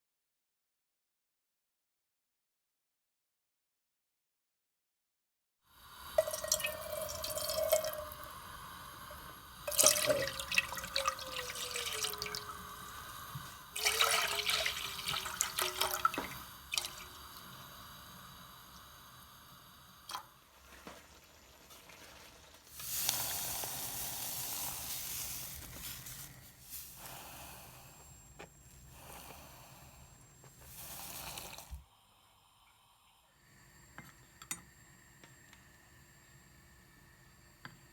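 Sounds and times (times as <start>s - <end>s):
tap water running into sink: 6.2s - 8.4s, 9.1s - 17.6s.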